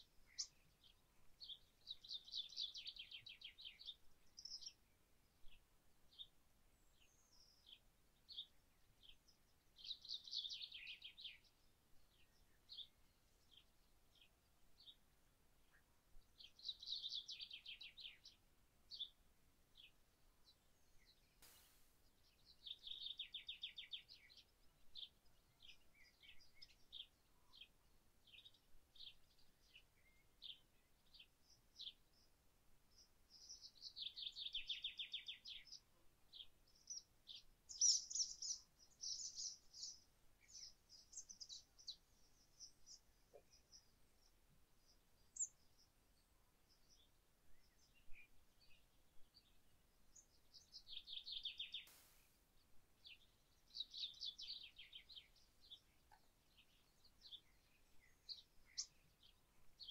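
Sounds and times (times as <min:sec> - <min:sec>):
high bird song burst: 0:21.4 - 0:27.6, 0:36.8 - 0:43.0, 0:50.2 - 0:59.9
birds chirping: 0:33.4 - 0:48.1, 0:53.0 - 0:59.9.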